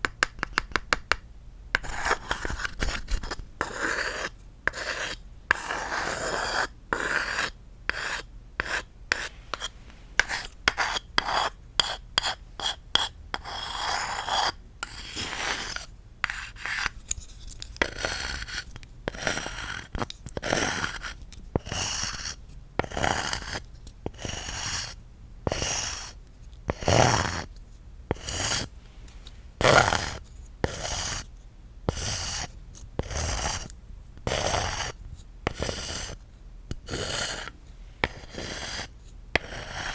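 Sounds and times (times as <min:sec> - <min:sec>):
tapping and scratching on wood: 0:00.0 - 0:01.2.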